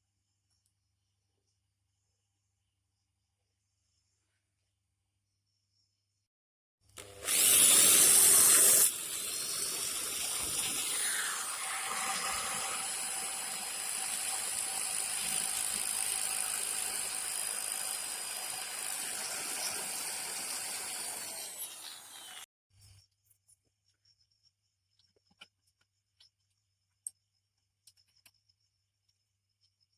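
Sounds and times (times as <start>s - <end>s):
mini engine whirring: 7.0s - 22.5s.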